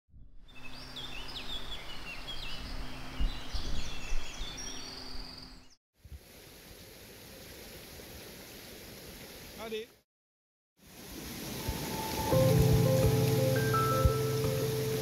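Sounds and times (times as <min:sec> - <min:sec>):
birds singing: 0:00.5 - 0:05.8
stream water rushing: 0:10.8 - 0:15.0.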